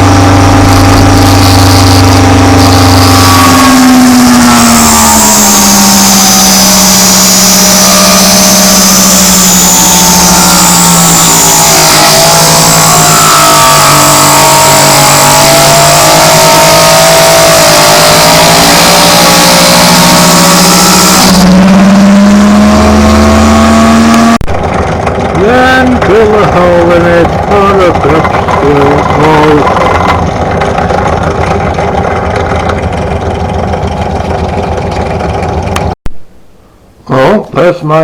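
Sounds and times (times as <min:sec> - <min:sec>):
small lathe motor running: 0:00.0 - 0:21.5.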